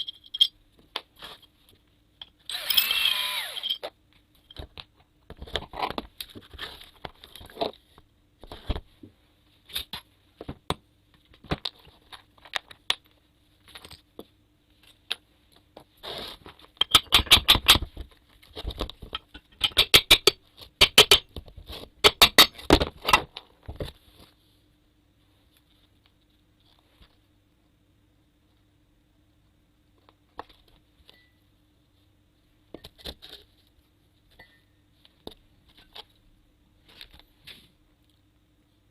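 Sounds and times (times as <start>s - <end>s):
tools tapping and clicking: 16.8s - 17.9s, 19.1s - 21.4s, 22.0s - 23.3s.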